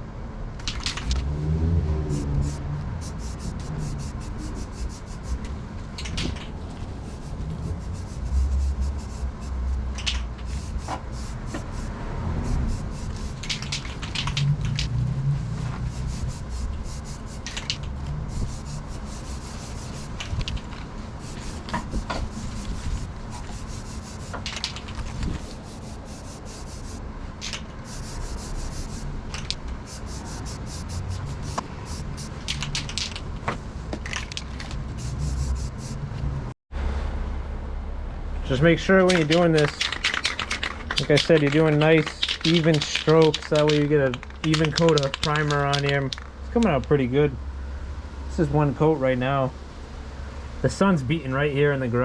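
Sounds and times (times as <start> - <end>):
steady low hum: 1.8 - 32.8, 34.8 - 36.5
spray gun hissing: 2.0 - 5.4, 6.9 - 13.6, 15.8 - 17.6, 18.3 - 20.2, 21.2 - 24.5, 25.2 - 27.0, 27.9 - 29.1, 29.9 - 32.4, 35.0 - 36.0.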